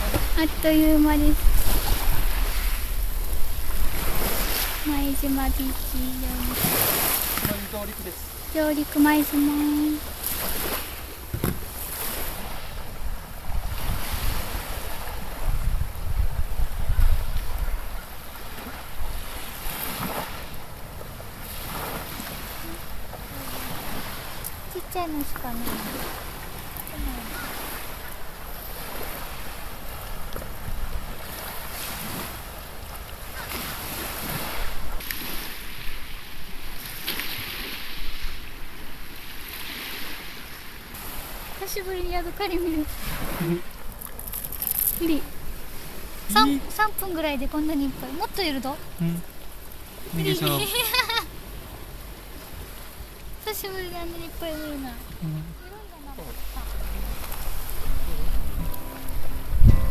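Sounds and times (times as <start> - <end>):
wind on microphone: 0.0 - 20.6, 55.0 - 59.9
small waves on sand: 0.0 - 59.9.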